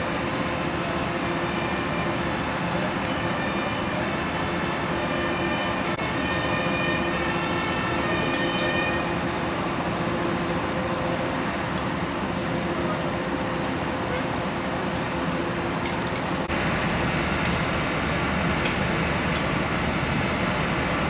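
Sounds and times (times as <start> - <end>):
siren: 1.4 - 2.3, 3.0 - 9.6
vehicle engines running: 15.4 - 21.0.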